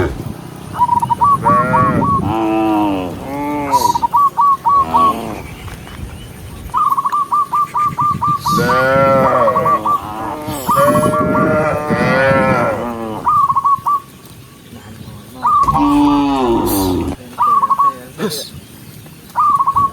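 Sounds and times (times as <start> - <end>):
cattle mooing: 1.4 - 4.0, 8.5 - 13.3, 15.6 - 17.2.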